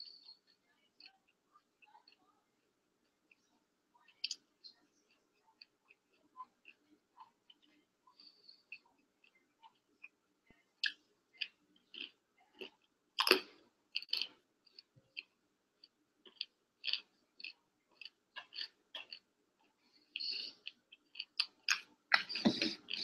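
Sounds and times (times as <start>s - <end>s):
person chewing crunchy food: 10.8s - 23.0s.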